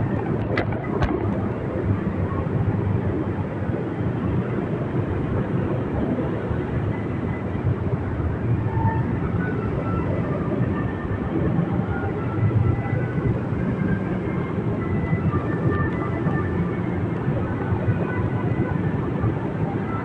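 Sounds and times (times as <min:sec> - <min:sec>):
motorbike engine rumble: 0:00.0 - 0:03.2.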